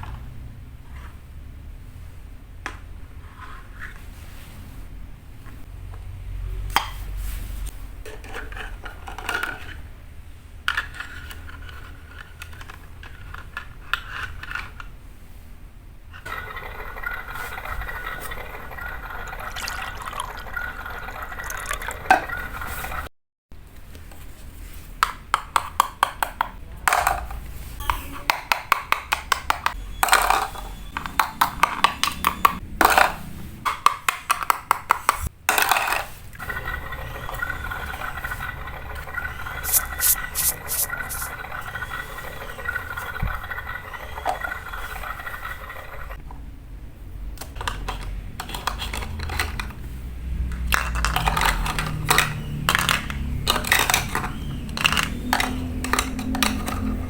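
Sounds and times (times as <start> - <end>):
liquid poured and stirred in pot: 16.3 - 23.1, 35.7 - 46.2.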